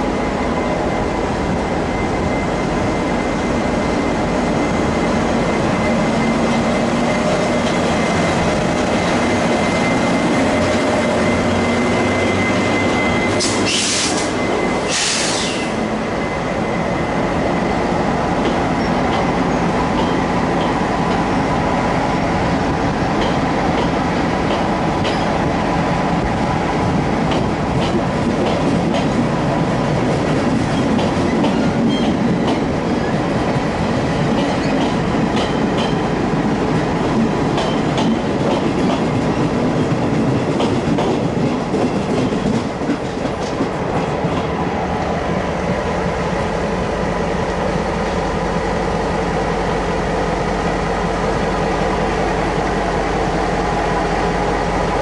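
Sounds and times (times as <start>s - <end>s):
diesel locomotive running: 0.0s - 55.0s
train wheels clicking over rail joints: 18.3s - 21.5s, 23.0s - 26.0s, 26.8s - 45.2s.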